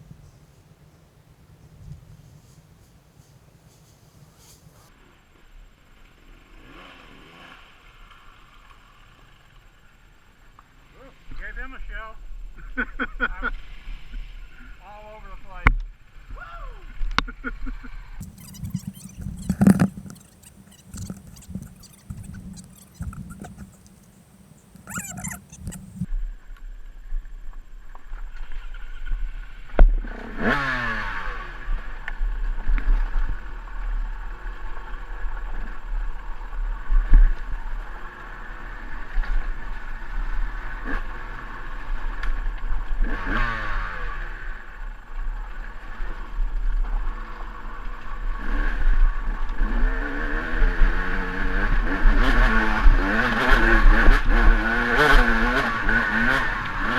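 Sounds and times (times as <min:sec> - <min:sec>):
dirt bike engine revving: 0:18.2 - 0:26.1, 0:30.0 - 0:32.0, 0:43.0 - 0:44.9, 0:47.0 - 0:56.9.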